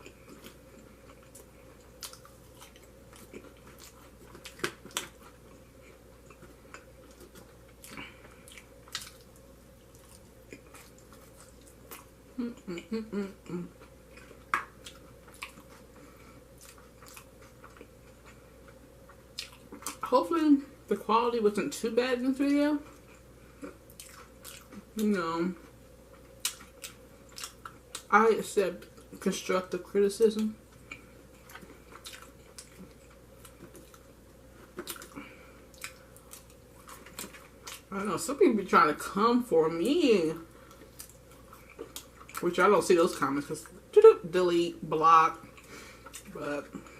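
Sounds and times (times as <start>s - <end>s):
mouth chewing sounds: 0.0s - 20.1s, 22.8s - 25.0s, 25.6s - 28.1s, 30.6s - 37.9s, 45.4s - 46.9s
low mouth noises: 12.4s - 13.8s.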